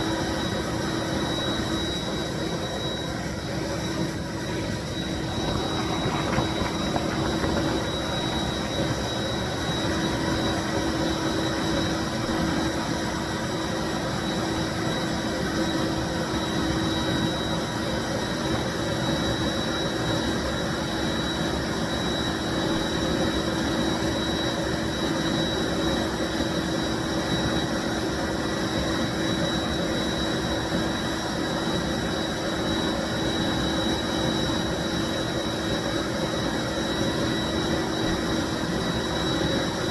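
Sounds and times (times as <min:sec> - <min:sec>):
cleaning machine motor running: 0:01.4 - 0:12.1.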